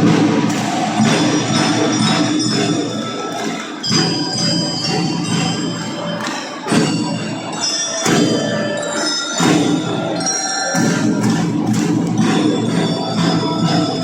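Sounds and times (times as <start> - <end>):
loud drum strikes: 0.0 - 5.9, 10.8 - 14.0
drums: 0.0 - 14.0
bell lyra melody: 0.8 - 14.0.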